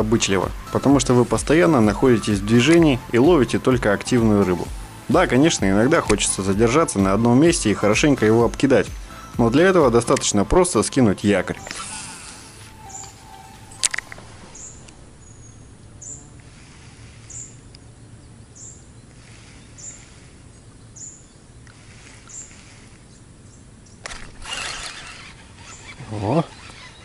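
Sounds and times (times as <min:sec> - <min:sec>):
riverside ambience: 0:00.0 - 0:27.0
small bird chirping: 0:11.6 - 0:27.0
sharp click: 0:13.8 - 0:15.0
short rush of noise: 0:13.9 - 0:17.7.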